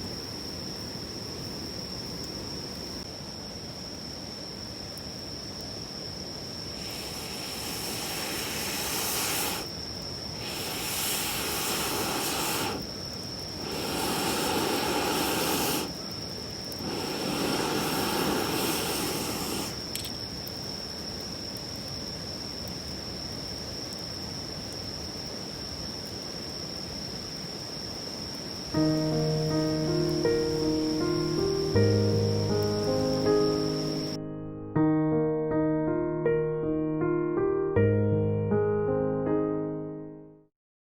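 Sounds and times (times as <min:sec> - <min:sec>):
high insect trill: 0:00.0 - 0:34.2
long rushes of air: 0:06.5 - 0:20.6, 0:28.8 - 0:34.2.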